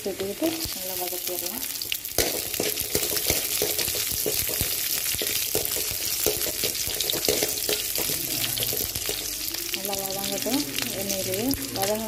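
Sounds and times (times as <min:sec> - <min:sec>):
food sizzling in oil: 0:00.0 - 0:12.0
ladle scraping and knocking pan: 0:02.2 - 0:09.3.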